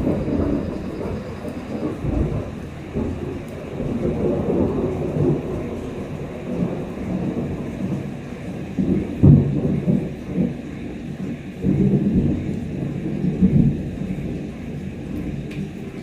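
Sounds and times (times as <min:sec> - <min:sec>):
steady rain: 0:00.0 - 0:16.0
thunder rumbling: 0:00.0 - 0:16.0.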